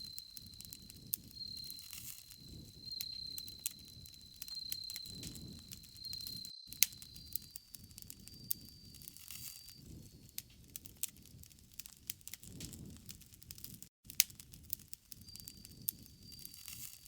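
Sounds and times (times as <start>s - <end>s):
flames rushing: 0.0s - 15.9s
burning wood popping: 0.0s - 17.0s.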